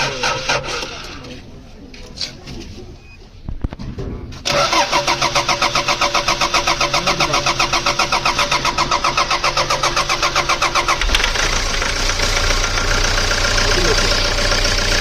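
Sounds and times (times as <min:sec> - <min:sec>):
starter cranking engine: 0:00.0 - 0:01.3, 0:04.4 - 0:15.0
diesel engine running: 0:04.5 - 0:15.0.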